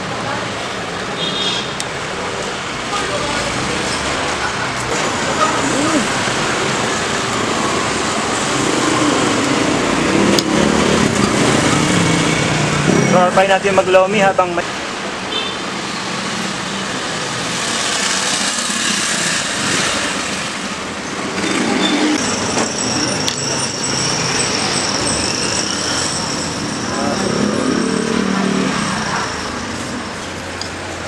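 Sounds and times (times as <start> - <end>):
street traffic: 0.0 - 31.0
high-pitched whine: 21.6 - 30.6
murmur of voices: 26.6 - 30.1.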